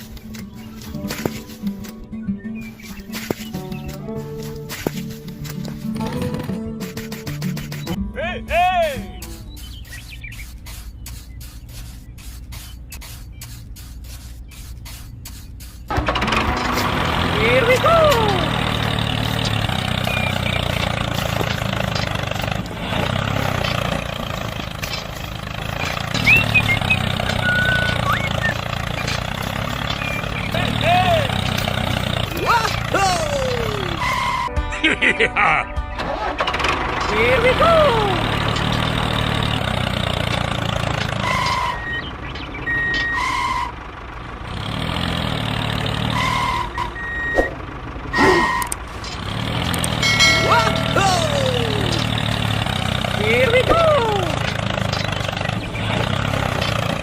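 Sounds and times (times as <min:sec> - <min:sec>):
small tractor engine rumble: 0:00.0 - 0:34.8, 0:35.7 - 0:57.0
short electronic beeps: 0:26.1 - 0:29.1, 0:41.2 - 0:43.7, 0:46.2 - 0:48.8.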